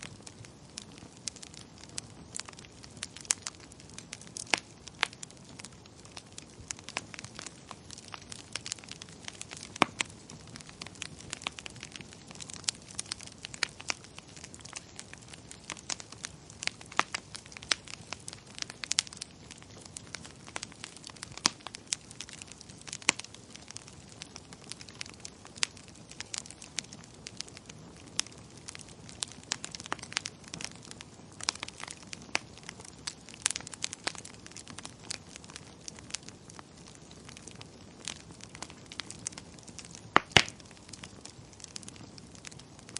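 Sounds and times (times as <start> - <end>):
wood fire crackling and popping: 0.0 - 42.9.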